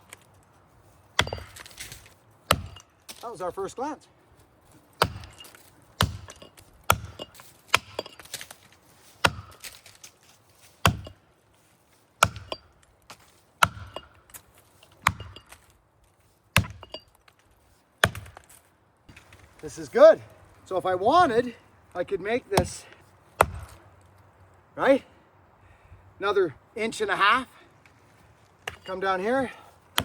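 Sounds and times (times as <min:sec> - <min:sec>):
axe chopping into trunk: 0:01.2 - 0:02.9, 0:05.0 - 0:08.5, 0:09.2 - 0:10.0, 0:10.8 - 0:11.2, 0:12.2 - 0:14.1, 0:15.0 - 0:15.6, 0:16.6 - 0:17.0, 0:18.0 - 0:18.5, 0:23.4 - 0:23.8.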